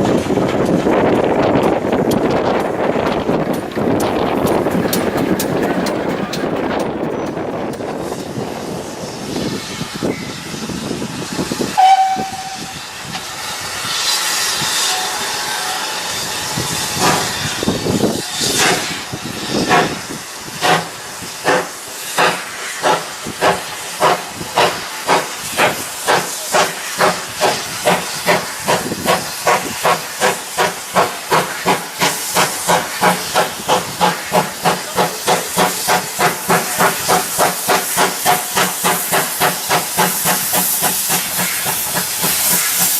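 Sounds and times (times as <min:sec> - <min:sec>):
steam hissing: 0:00.0 - 0:42.9
steam locomotive whistle: 0:11.8 - 0:12.9, 0:14.0 - 0:17.2.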